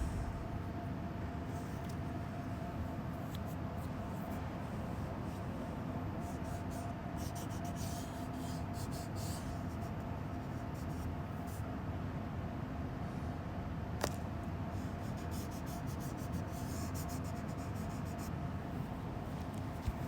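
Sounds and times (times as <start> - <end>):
airbrush air hiss bursts: 0.0 - 0.6
steady low hum: 0.0 - 11.5.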